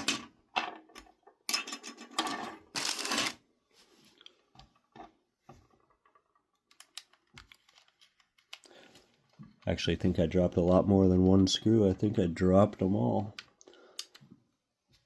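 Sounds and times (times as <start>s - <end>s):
screws and plastic parts rattling: 0.0s - 3.4s.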